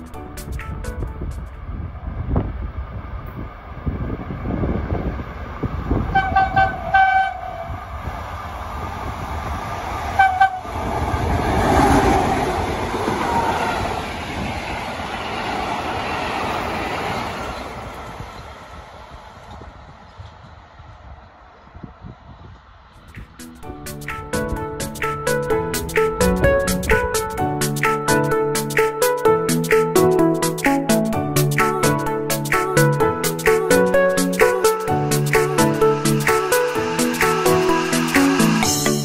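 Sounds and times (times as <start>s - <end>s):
train passing with wheel clatter: 0.0s - 39.0s
locomotive horn blasts: 6.1s - 7.8s, 10.2s - 10.7s.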